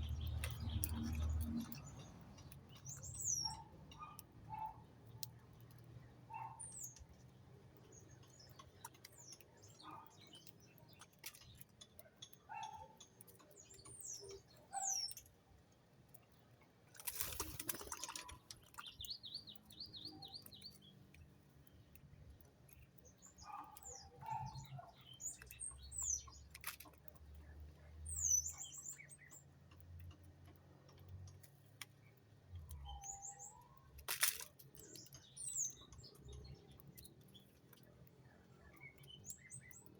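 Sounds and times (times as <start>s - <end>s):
small clicks and ticks: 0.0s - 39.9s
small songbirds chirping: 0.0s - 39.9s
rustling: 34.1s - 34.6s.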